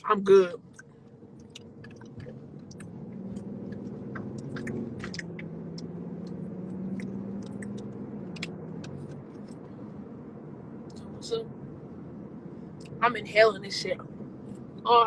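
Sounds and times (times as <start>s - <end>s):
wet mouth clicks: 0.7s - 5.4s, 6.9s - 9.0s.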